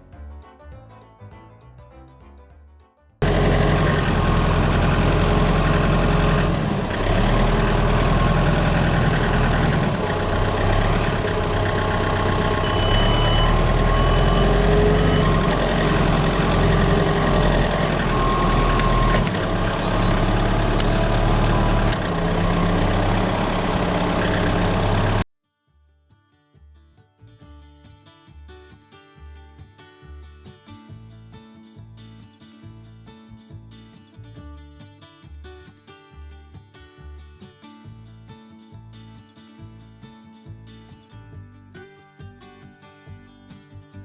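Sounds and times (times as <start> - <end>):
diesel engine running: 3.2 - 25.3
short high beeps: 12.1 - 15.6.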